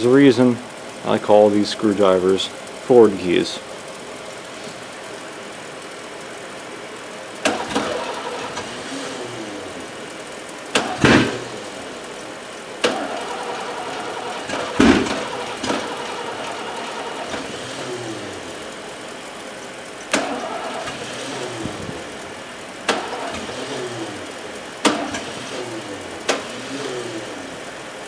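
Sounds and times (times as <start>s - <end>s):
steady engine sound: 0.0s - 28.0s
starter motor cranking: 7.4s - 9.7s, 10.7s - 12.2s, 12.8s - 18.8s, 20.0s - 27.6s.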